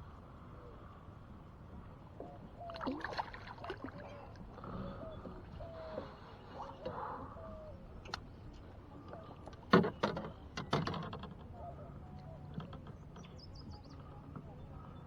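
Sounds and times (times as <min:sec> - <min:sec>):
quiet river ambience: 0:00.0 - 0:15.0
paddle splashes and knocks: 0:02.7 - 0:04.4.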